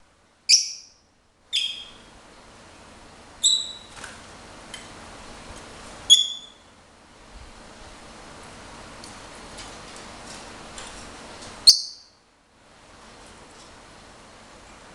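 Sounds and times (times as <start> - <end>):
lovebird chirping: 0.5 - 2.1, 3.4 - 3.9, 6.1 - 6.6, 11.6 - 12.2.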